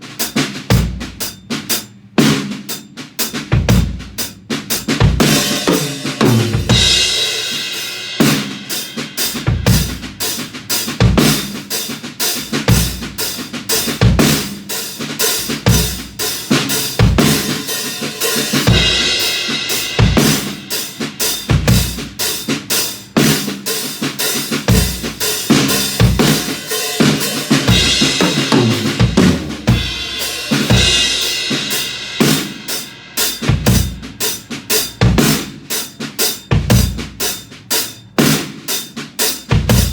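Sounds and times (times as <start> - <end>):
hi-hat or ride cymbal: 0.0 - 39.9
snare drum with rimshots: 0.0 - 39.9
bass drum: 3.3 - 8.6, 9.2 - 11.7, 12.4 - 35.6, 39.4 - 39.9
crash cymbals: 25.2 - 33.5.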